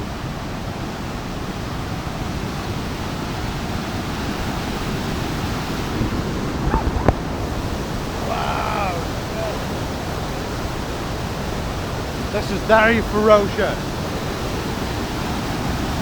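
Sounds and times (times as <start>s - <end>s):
waterfall pouring: 5.7s - 9.8s.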